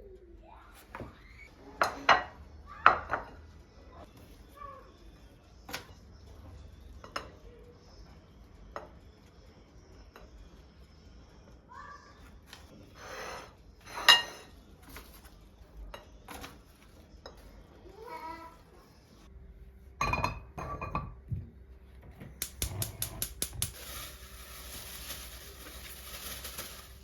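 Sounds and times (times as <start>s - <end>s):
dishes and cutlery clinking: 1.8s - 3.5s, 7.0s - 7.4s, 13.3s - 17.6s, 20.0s - 21.3s.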